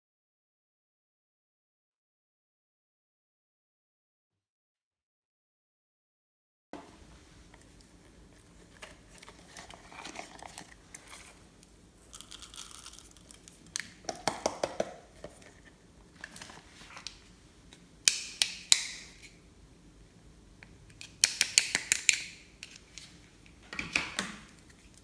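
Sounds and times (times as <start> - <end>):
materials crinkling and rustling: 7.4 - 14.0
clicks and taps: 13.4 - 15.4.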